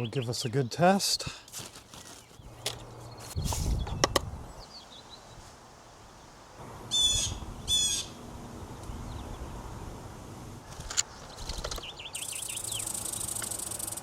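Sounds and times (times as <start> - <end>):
harsh bird calls: 6.9 - 8.2, 11.1 - 14.0.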